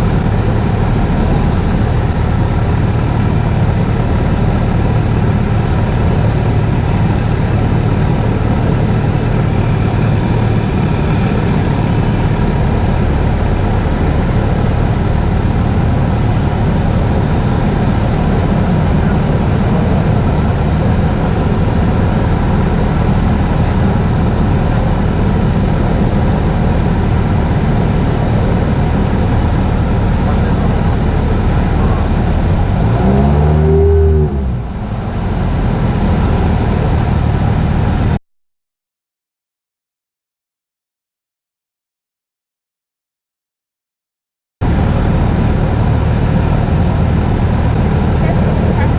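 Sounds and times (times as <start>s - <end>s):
light aircraft engine droning: 0.0s - 38.2s, 44.6s - 48.9s.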